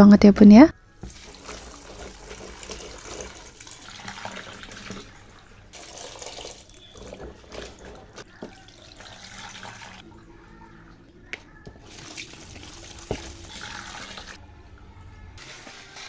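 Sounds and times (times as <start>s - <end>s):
tap water splashing into sink: 1.0s - 5.2s, 5.8s - 10.0s, 11.3s - 14.4s.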